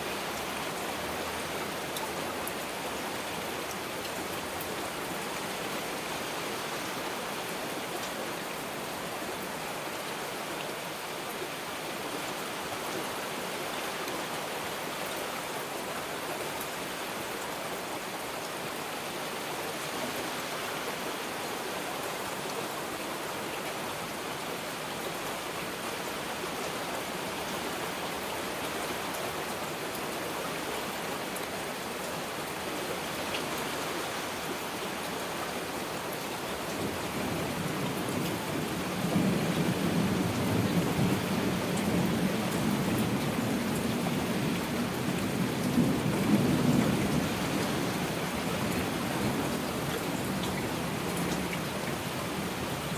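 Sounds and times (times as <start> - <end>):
heavy rain: 0.0 - 52.9.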